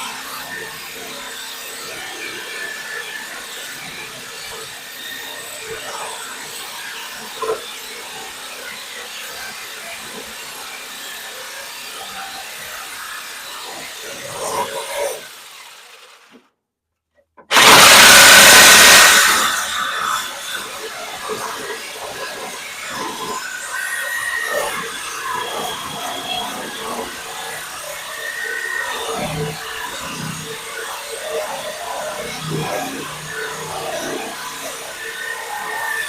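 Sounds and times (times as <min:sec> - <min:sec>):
tool work noise: 0:00.0 - 0:16.6, 0:17.2 - 0:36.0
loud rush of noise: 0:17.5 - 0:20.6.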